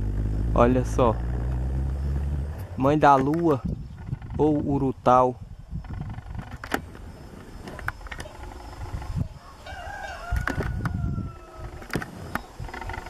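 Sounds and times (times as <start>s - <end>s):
low rumble: 0.0s - 7.3s
drawn-out wavering bird call: 7.1s - 13.0s.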